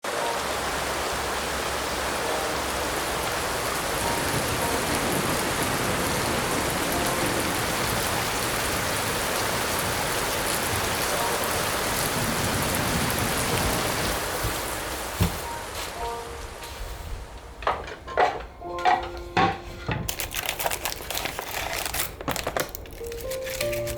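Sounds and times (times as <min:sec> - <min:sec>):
heavy rain falling: 0:00.0 - 0:18.2.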